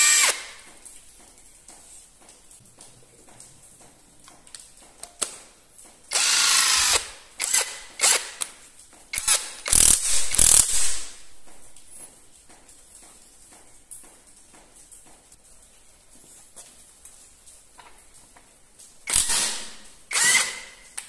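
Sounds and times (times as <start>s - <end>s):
cordless power tool motor bursts: 0.0s - 0.5s, 6.1s - 8.3s, 19.1s - 20.7s.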